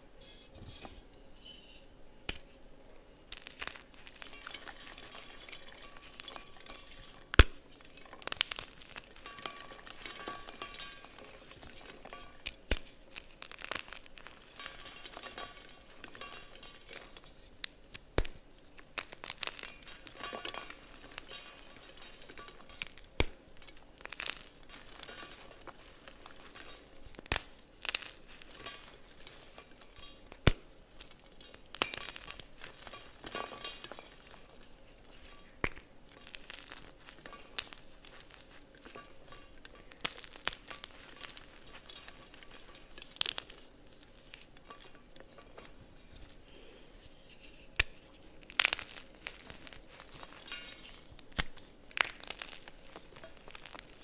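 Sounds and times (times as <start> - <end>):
chalk crumbling: 1.4 - 54.0
chalk pieces cracking: 12.4 - 14.6, 22.0 - 28.8, 47.2 - 54.0.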